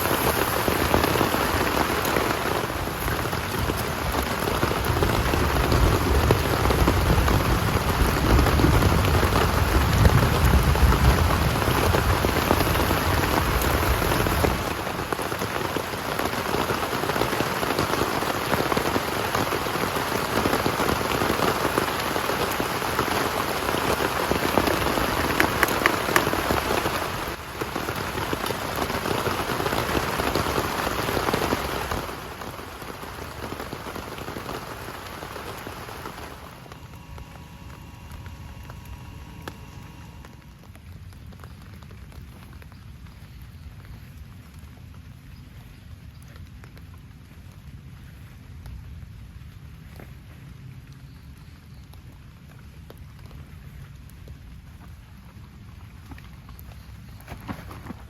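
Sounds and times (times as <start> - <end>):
deep rumble: 0.0 - 14.9
heavy rain falling: 0.0 - 50.1.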